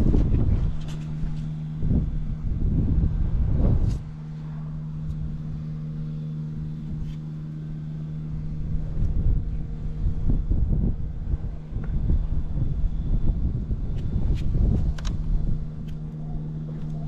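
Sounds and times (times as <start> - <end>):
wind buffeting microphone: 0.0 - 17.0
motorcycle engine idling: 4.1 - 17.0.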